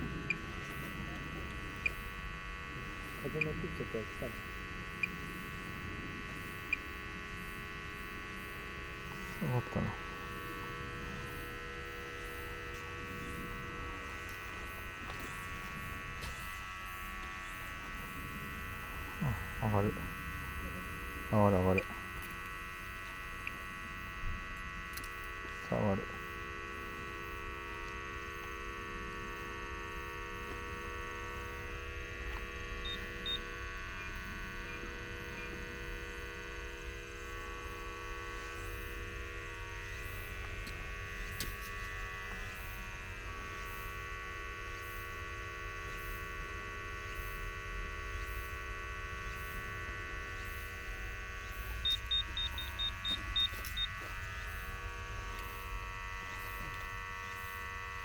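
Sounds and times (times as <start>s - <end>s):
leak detector electric hum: 0.0s - 58.0s
short high beeps: 51.8s - 53.9s.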